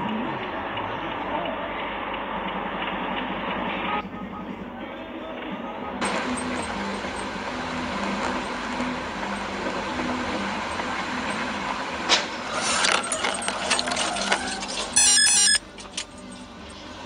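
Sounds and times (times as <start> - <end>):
vehicle running and road noise: 0.0 - 17.0
clicks and rattles: 6.0 - 15.0
loud stepped tone: 14.9 - 15.6.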